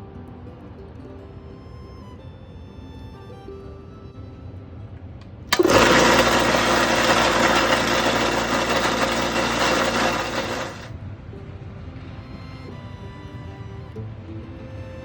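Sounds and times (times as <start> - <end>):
electric air compressor running: 5.5 - 10.9.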